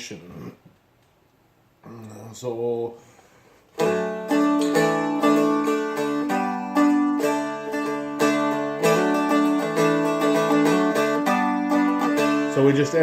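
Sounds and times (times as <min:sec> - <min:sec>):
guitar strumming: 0:03.8 - 0:13.0.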